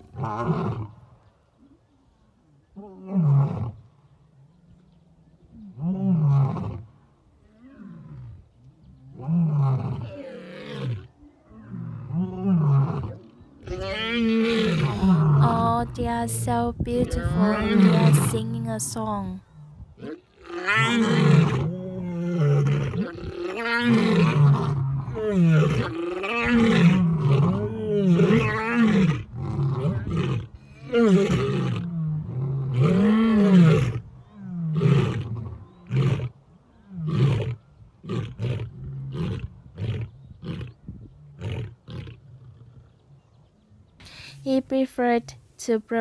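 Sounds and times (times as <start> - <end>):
lions roaring: 9.1 - 15.4, 20.0 - 34.0
lions grunting: 11.6 - 15.4.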